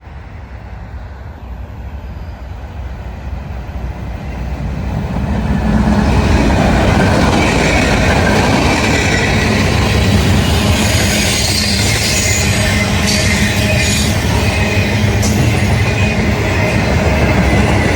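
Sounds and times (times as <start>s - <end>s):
freight train rumbling: 0.0s - 17.9s
wheels squealing on rails: 1.5s - 17.9s.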